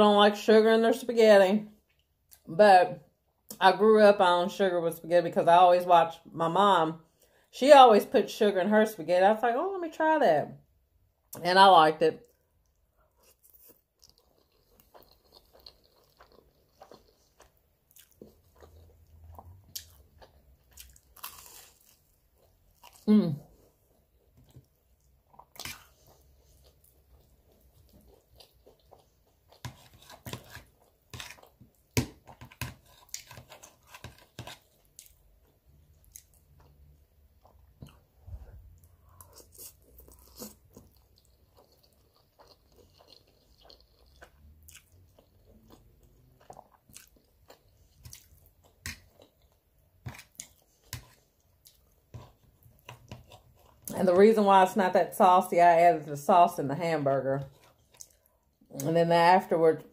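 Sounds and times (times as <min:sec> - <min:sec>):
close-up chewing and mouth clicks: 0:12.2 - 0:23.1, 0:23.9 - 0:53.9, 0:57.4 - 0:58.9.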